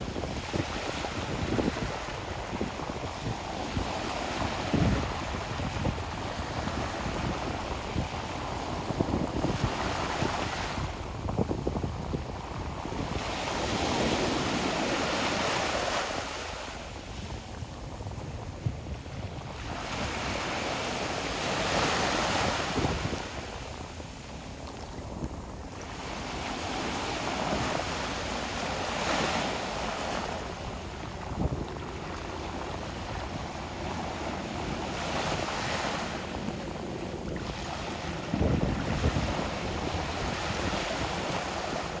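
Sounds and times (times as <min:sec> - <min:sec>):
ocean waves washing ashore: 0:00.0 - 0:42.0
wind rumbling on microphone: 0:00.0 - 0:42.0
ocean wave breaking on shore: 0:12.8 - 0:18.1, 0:19.5 - 0:24.6.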